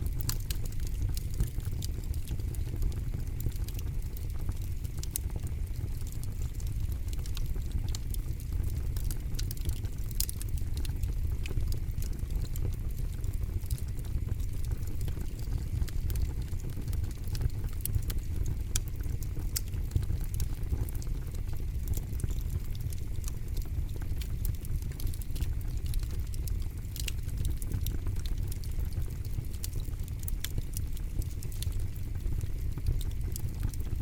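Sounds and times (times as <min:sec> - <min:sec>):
campfire crackling: 0:00.0 - 0:34.0.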